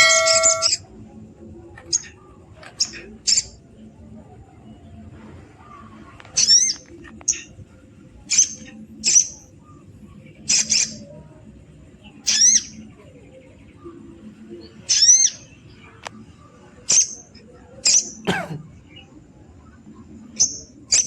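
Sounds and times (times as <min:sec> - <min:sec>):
jay giving sharp calls: 0:00.0 - 0:00.8.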